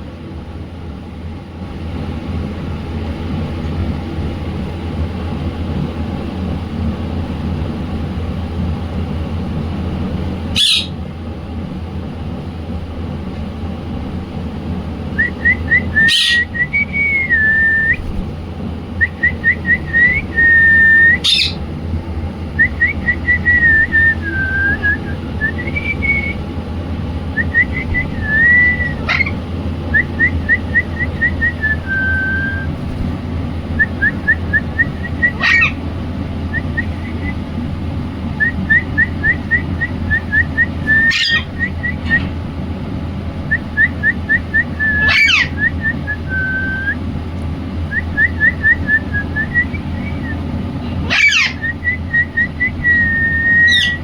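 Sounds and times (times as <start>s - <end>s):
steady low hum: 0.0s - 54.0s
parrot whistling: 10.6s - 11.0s, 15.2s - 18.1s, 19.0s - 21.6s, 22.6s - 26.4s, 27.4s - 32.7s, 33.8s - 35.8s, 36.5s - 37.4s, 38.4s - 42.3s, 43.5s - 47.0s, 47.9s - 50.4s, 51.1s - 54.0s.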